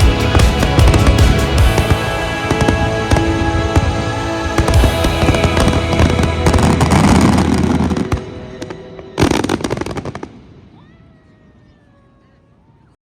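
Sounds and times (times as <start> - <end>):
music: 0.0 - 10.3
fireworks crackling and banging: 0.0 - 10.9.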